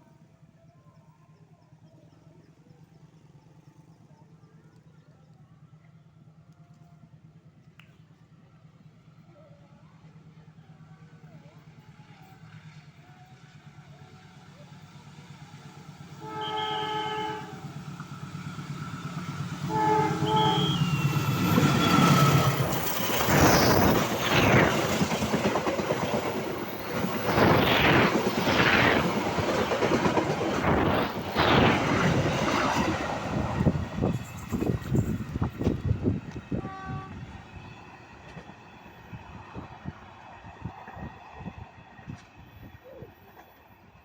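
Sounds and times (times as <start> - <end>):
train rumble: 5.6 - 44.0
train horn blasts: 16.1 - 17.8, 19.6 - 22.5, 36.5 - 37.6
train wheels clattering: 20.5 - 36.5.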